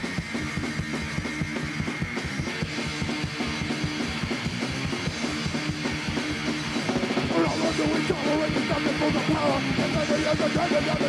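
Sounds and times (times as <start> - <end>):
bass guitar: 0.0 - 11.0
distorted electric guitar: 0.0 - 11.0
fast driving drums: 0.0 - 11.0
person singing: 7.2 - 11.0.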